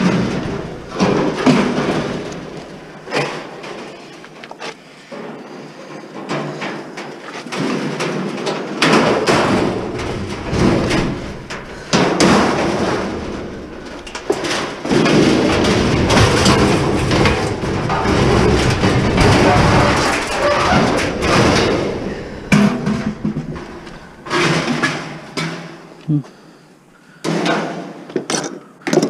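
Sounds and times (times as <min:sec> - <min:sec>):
metal parts banging and clattering: 0:00.0 - 0:26.0
metal rattling and scraping: 0:00.0 - 0:26.0.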